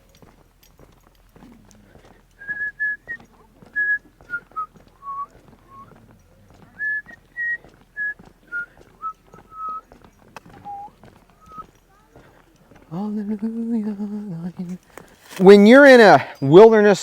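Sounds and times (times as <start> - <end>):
person whistling a tune: 2.4 - 3.2, 3.8 - 5.9, 6.8 - 9.8, 10.6 - 11.7.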